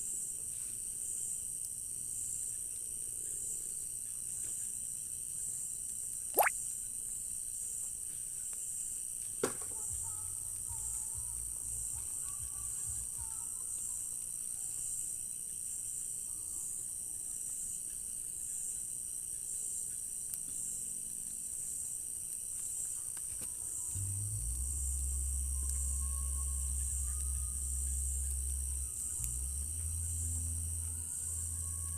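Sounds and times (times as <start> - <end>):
crickets trilling: 10.9 - 31.9
low hum: 23.9 - 31.9.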